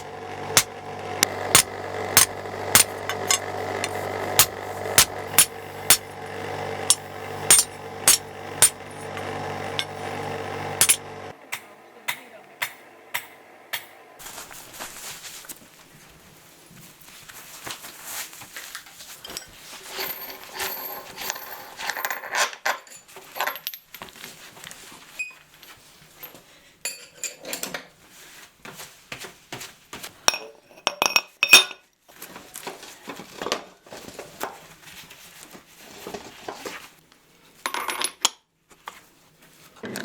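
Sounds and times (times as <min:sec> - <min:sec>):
small metal objects clinking: 0:01.5 - 0:06.2, 0:06.9 - 0:10.0.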